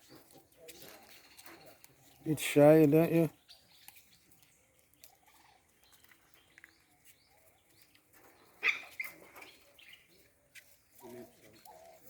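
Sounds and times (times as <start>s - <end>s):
high-pitched animal calls: 8.6s - 9.9s.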